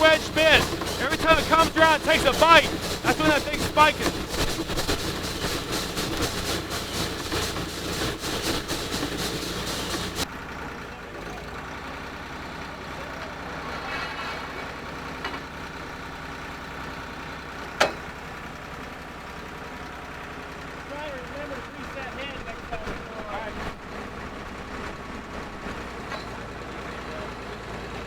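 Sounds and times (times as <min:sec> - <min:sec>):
drill rig drilling through rock: 0:00.0 - 0:10.3
steady engine running: 0:00.0 - 0:13.6, 0:15.7 - 0:26.1.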